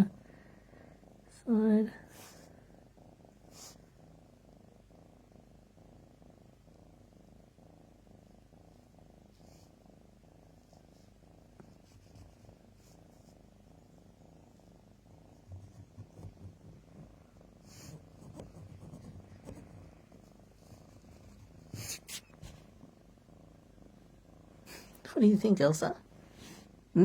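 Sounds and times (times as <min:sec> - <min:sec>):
cat purring: 0:00.0 - 0:27.0.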